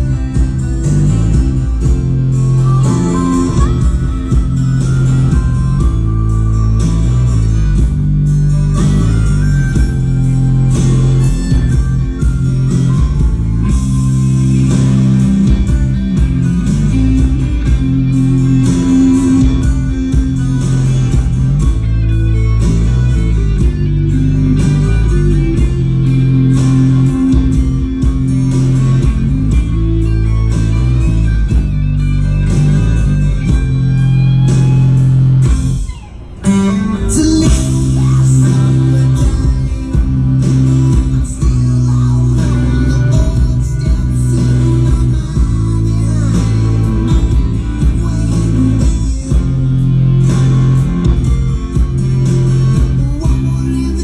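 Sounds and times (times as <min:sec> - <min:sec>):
guitar-led rock music: 0:00.0 - 0:54.0.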